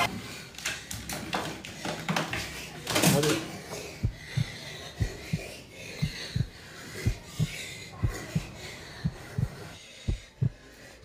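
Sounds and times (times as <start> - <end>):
heartbeat thumps: 4.0 - 10.7.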